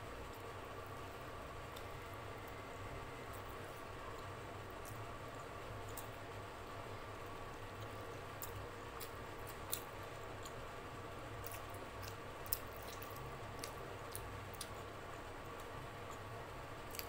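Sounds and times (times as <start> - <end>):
steady low hum: 0.0 - 17.0
wet chewing of food: 7.7 - 10.6, 11.4 - 14.9.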